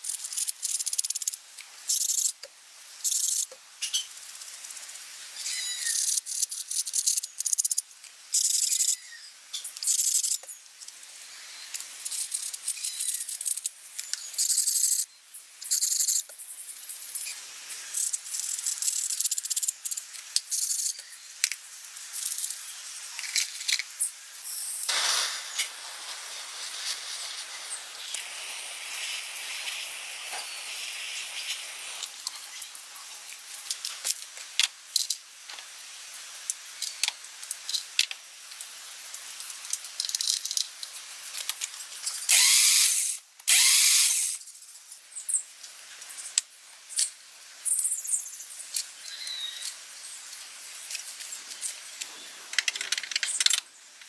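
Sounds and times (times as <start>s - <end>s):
hissing spray bursts: 24.4s - 32.8s, 42.3s - 44.4s.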